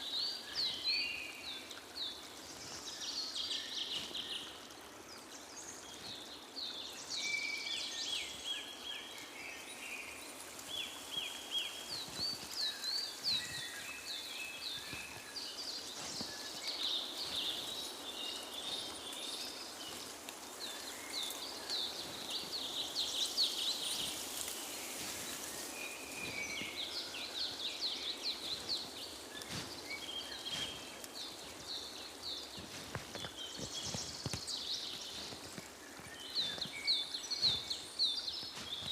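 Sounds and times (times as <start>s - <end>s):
steady background hiss: 0.0s - 38.8s
songbirds singing and chirping: 0.0s - 38.9s.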